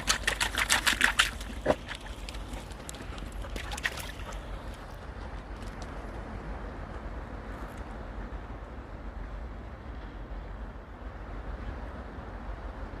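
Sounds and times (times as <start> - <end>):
faint light splashes: 0.0 - 4.9
wind rumbling on microphone: 0.0 - 13.0.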